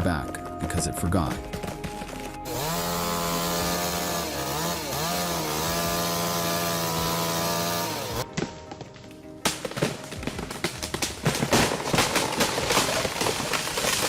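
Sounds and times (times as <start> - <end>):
chainsaw cutting at high throttle: 2.4 - 8.2.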